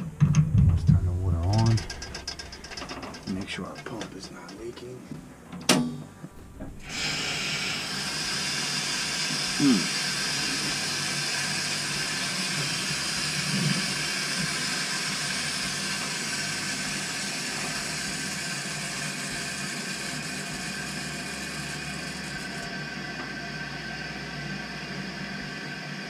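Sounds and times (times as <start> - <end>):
water hissing through pipes: 6.8 - 26.0.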